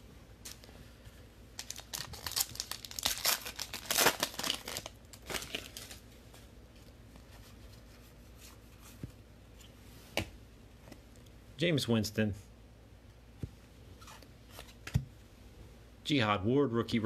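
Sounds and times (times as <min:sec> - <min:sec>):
wrapper being torn and crinkled: 0:01.6 - 0:06.0.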